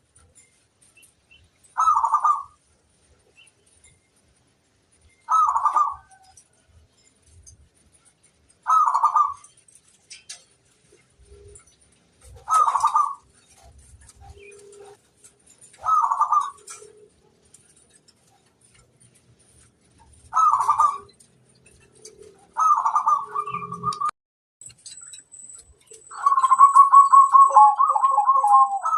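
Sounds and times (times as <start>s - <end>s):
fainter lower bird calls: 0.0s - 24.1s, 24.7s - 28.9s
dove cooing: 1.8s - 2.6s, 5.3s - 6.3s, 8.6s - 9.5s, 12.2s - 15.0s, 15.6s - 17.2s, 20.2s - 21.1s, 21.9s - 24.1s, 26.1s - 28.9s.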